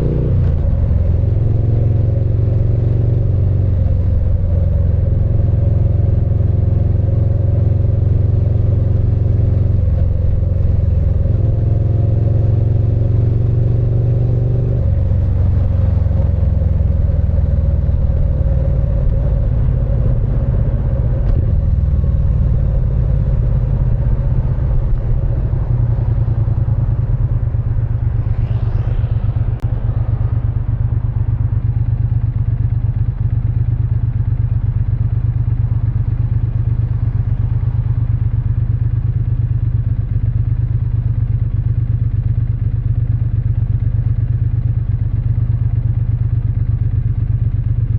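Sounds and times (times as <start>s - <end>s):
motorcycle engine running: 14.9s - 47.9s.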